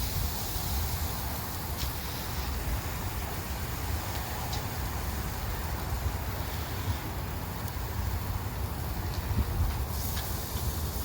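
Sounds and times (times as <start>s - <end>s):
meat sizzling on a grill: 0.0s - 4.0s, 9.9s - 11.0s
wind rumble on microphone: 0.0s - 11.0s.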